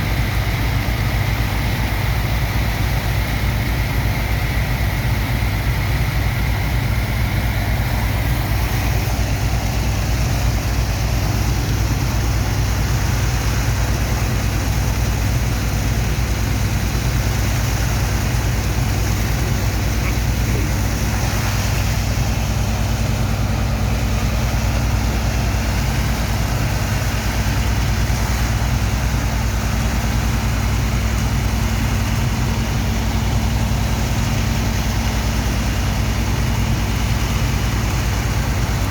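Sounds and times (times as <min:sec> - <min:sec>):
heavy pump engine humming: 0:00.0 - 0:38.9
rushing hiss of water and sand: 0:17.0 - 0:28.7.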